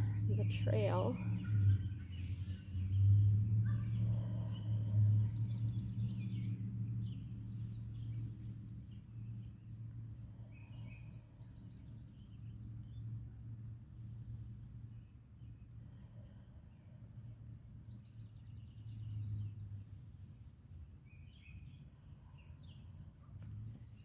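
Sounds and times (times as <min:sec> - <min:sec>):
steady low hum: 0:00.0 - 0:18.4.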